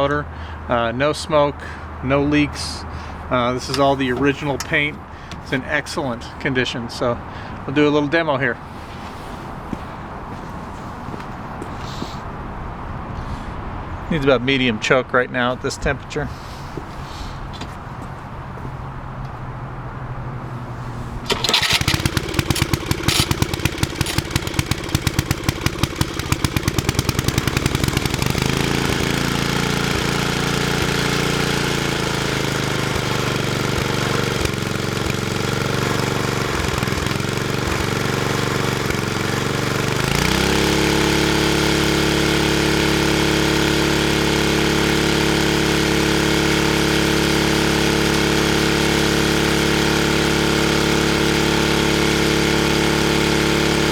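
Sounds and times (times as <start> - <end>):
single-cylinder engine starting and running: 0.0 - 14.6, 15.6 - 53.9.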